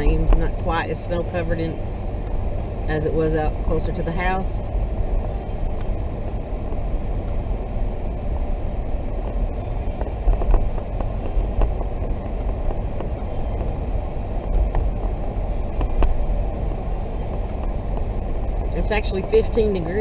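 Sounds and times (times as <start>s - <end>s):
car engine and tyre noise: 0.0s - 20.0s.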